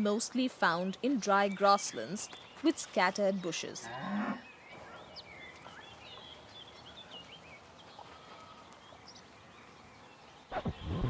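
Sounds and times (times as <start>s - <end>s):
high bird chirps: 4.6s - 11.0s.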